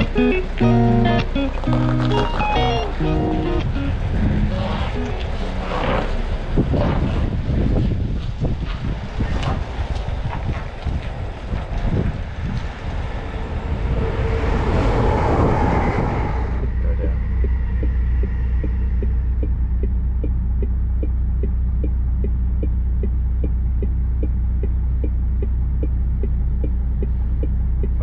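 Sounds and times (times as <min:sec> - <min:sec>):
diesel engine idling: 0:00.0 - 0:06.8, 0:12.3 - 0:28.0
rushing noise: 0:00.0 - 0:20.2
light ticking: 0:16.6 - 0:28.0.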